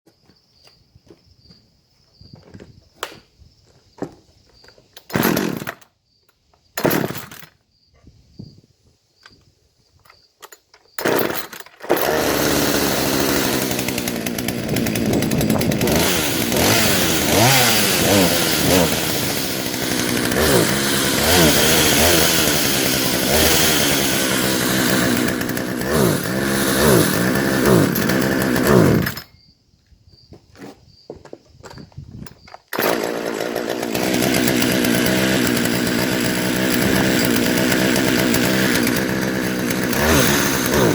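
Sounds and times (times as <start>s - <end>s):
chainsaw revving: 5.1s - 5.8s, 6.8s - 7.5s, 11.0s - 29.3s, 32.7s - 40.9s.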